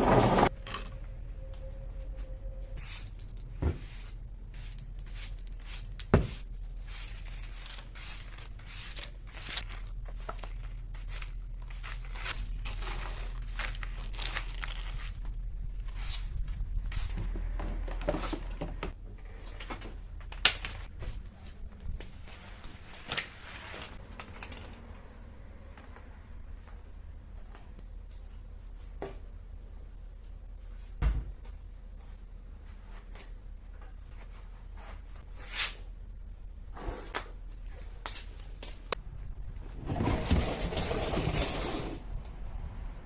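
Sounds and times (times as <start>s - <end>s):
rustling and crinkling: 2.8s - 29.3s.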